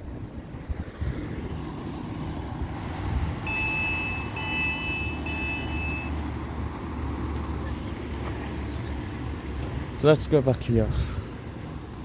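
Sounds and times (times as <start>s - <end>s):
low train rumble: 0.0s - 12.0s
high electronic warning beeps: 3.5s - 6.2s.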